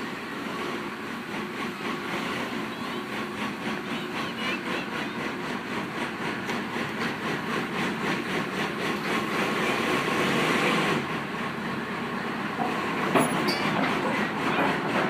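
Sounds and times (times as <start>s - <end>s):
mini excavator rattling: 12.6s - 15.0s.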